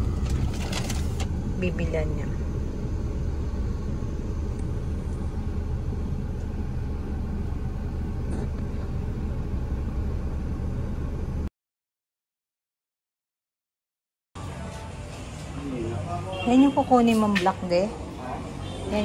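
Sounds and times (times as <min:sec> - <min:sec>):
car engine idling: 0:00.0 - 0:11.5.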